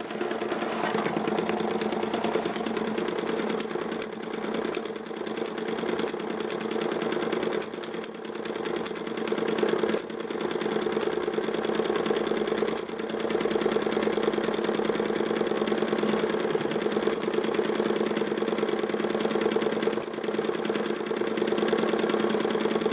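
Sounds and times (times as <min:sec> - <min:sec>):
toy steam engine running: 0:00.0 - 0:08.1.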